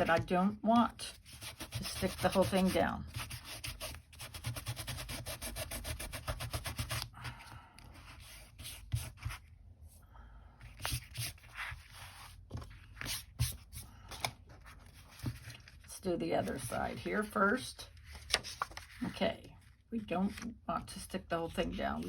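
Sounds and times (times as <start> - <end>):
rubbing strokes on paper: 1.1 - 7.0
paper handling and scraping: 10.6 - 19.4.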